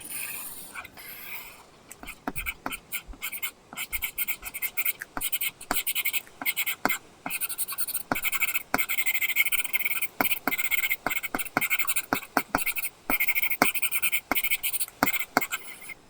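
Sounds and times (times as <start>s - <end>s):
stylus scratching on screen: 0.0s - 16.0s.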